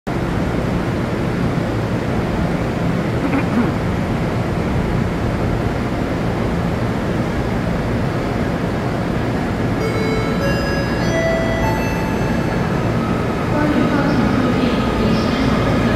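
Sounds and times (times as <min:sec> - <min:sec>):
rising steady tones: 0:09.8 - 0:15.3.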